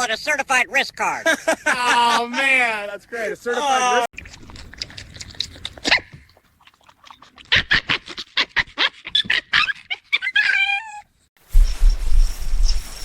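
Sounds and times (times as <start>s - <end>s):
dog whining: 9.1s - 11.1s.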